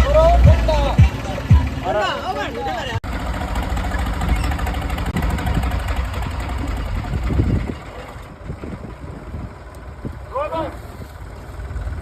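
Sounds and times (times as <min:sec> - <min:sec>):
tractor diesel engine rumbling: 0:00.0 - 0:12.0.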